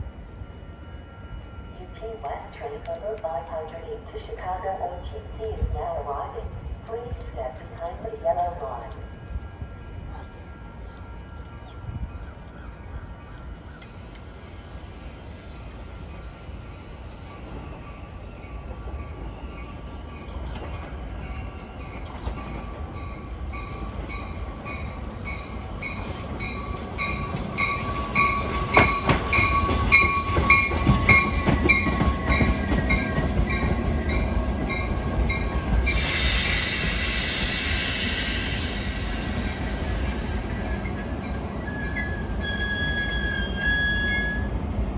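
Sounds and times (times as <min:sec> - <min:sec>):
train pulling into station: 0:00.0 - 0:44.9
loud hiss: 0:35.8 - 0:40.8
steady squeal: 0:35.9 - 0:44.5.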